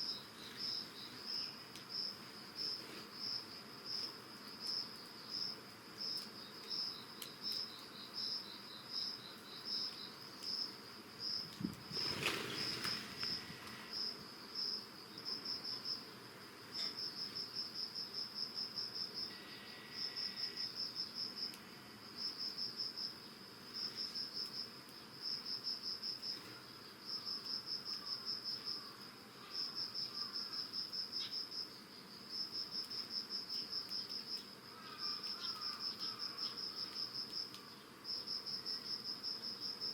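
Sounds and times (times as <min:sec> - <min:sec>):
crickets chirping: 0:00.0 - 0:39.9
lower chirping insect: 0:00.0 - 0:39.9
rustling noise: 0:02.2 - 0:03.2, 0:11.4 - 0:14.0.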